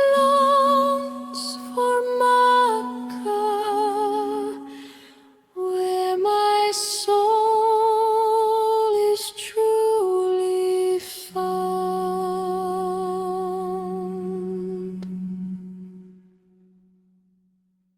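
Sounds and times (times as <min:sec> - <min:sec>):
low steady tone: 0:10.2 - 0:17.3.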